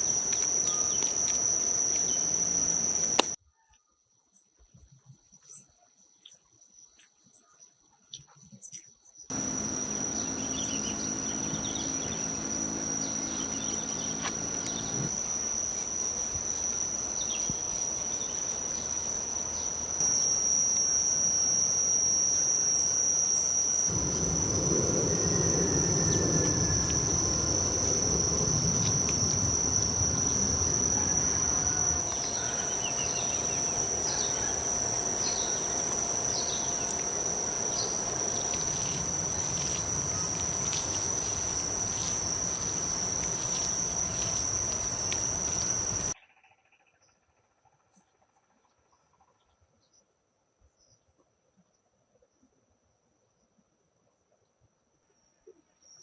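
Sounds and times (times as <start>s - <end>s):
crickets trilling: 0.0s - 3.7s, 5.2s - 46.2s
descending bird chirps: 9.3s - 15.6s, 16.9s - 46.2s
low rough noise: 9.3s - 46.2s.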